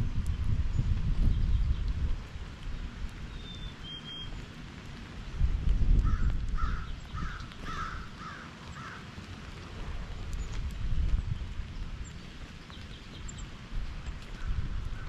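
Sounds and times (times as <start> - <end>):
low rumbling noise: 0.0 - 3.8, 9.4 - 15.0
distant harsh bird calls: 6.1 - 9.0.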